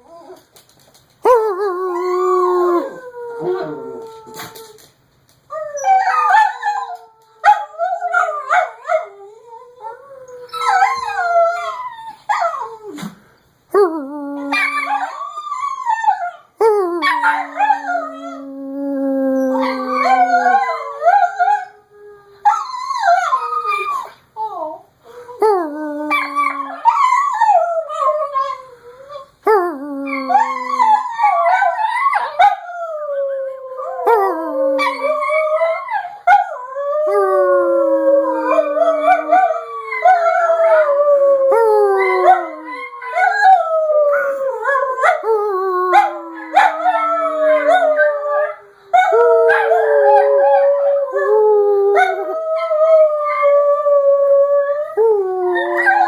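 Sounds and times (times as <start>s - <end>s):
dogs howling: 17.0s - 24.8s, 30.0s - 56.0s.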